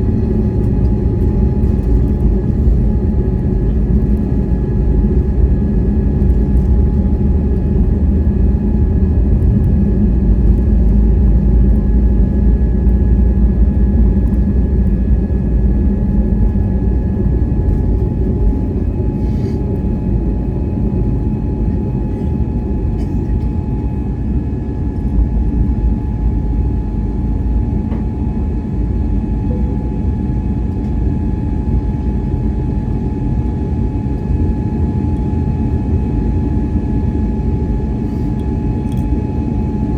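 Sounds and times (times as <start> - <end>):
faint engine whine: 0.0 - 39.9
jet engine rumble in cabin: 0.0 - 39.9.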